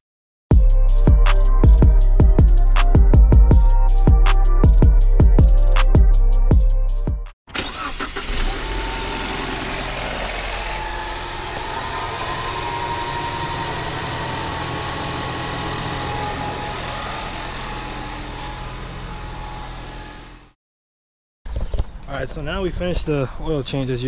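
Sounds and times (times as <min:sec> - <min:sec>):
car engine idling: 0:07.6 - 0:20.5.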